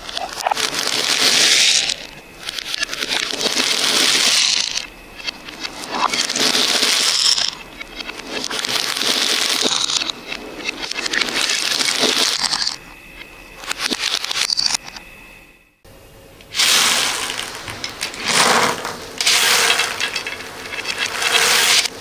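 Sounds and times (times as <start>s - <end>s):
beads pouring and clattering: 3.3s - 4.7s, 16.5s - 22.0s.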